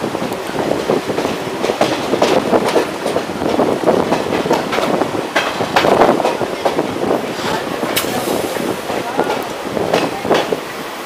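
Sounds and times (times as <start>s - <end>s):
train wheels clicking over rails: 0.0s - 11.0s.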